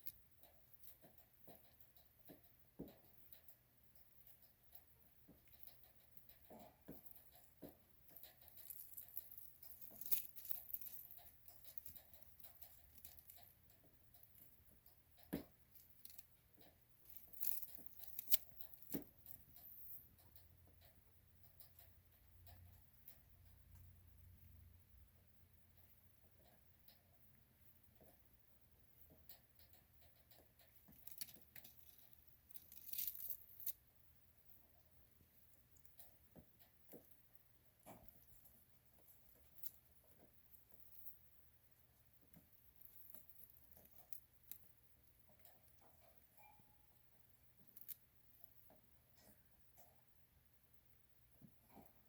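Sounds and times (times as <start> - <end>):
dry skin crackling and rustling: 7.0 - 13.5, 17.0 - 20.0, 30.9 - 33.8.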